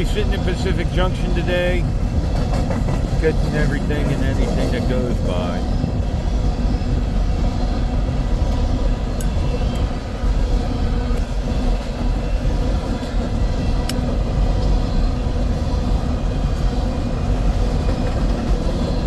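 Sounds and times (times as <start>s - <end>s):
freight train rumbling past: 0.0s - 19.0s.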